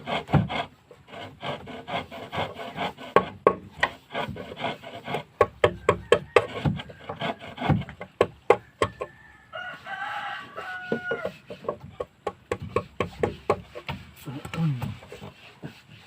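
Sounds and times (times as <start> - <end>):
hand tool rasping wood: 0.0 - 16.0
rooster crowing: 5.8 - 7.6, 8.6 - 11.5.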